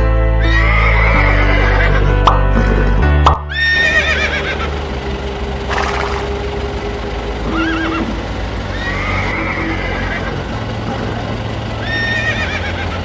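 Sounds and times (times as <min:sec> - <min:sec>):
horse whinnying: 0:00.4 - 0:02.0, 0:03.5 - 0:04.7, 0:05.7 - 0:06.3.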